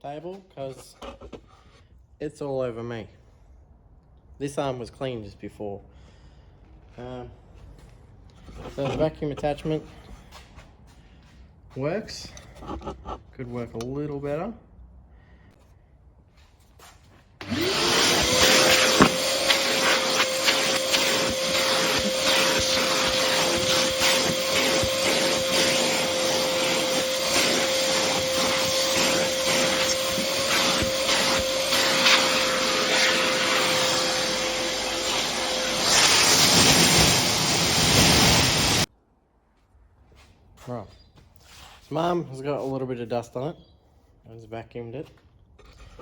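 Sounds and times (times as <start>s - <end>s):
workshop vacuum motor whining: 17.4s - 38.9s.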